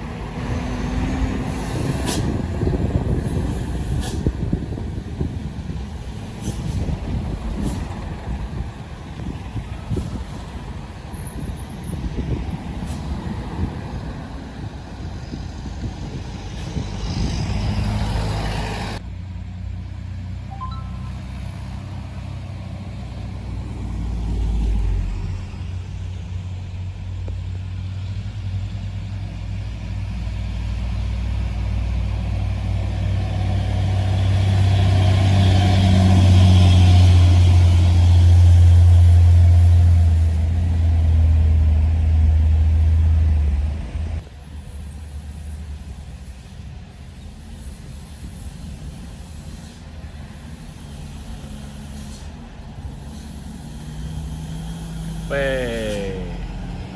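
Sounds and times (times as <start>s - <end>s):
traffic noise: 0.0s - 56.9s
heavy truck engine drone: 52.8s - 56.9s.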